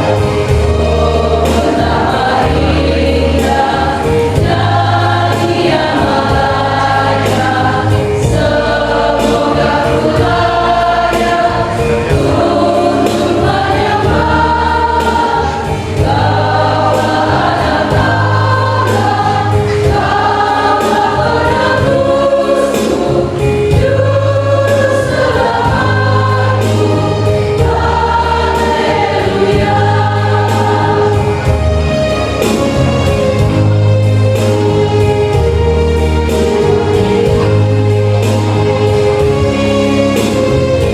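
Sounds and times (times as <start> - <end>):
church choir singing a hymn: 0.0 - 40.9.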